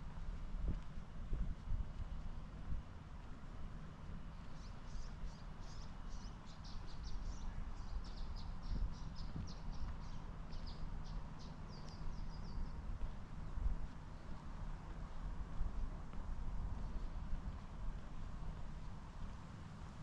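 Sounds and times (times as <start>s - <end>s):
small birds chirping: 4.1s - 14.4s.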